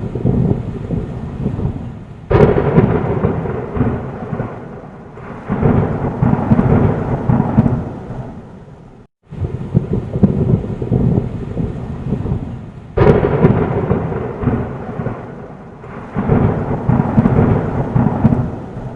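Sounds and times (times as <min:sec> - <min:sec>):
rain: 0:00.0 - 0:18.9
sharp thunder clap: 0:00.0 - 0:18.9
thunder rumbling: 0:00.0 - 0:18.9.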